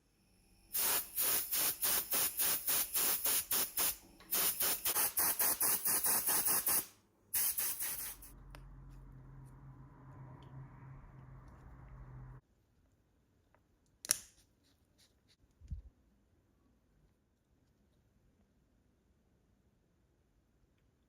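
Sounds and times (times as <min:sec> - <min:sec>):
rapid pulses of hissing spray: 0:00.7 - 0:08.4.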